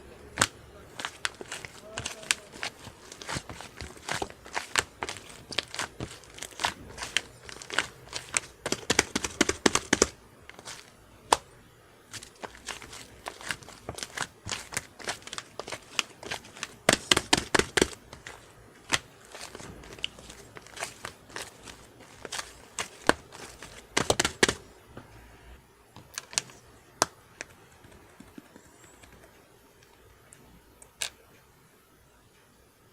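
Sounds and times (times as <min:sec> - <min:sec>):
slime crackling and popping: 0:00.3 - 0:11.5, 0:12.1 - 0:24.6.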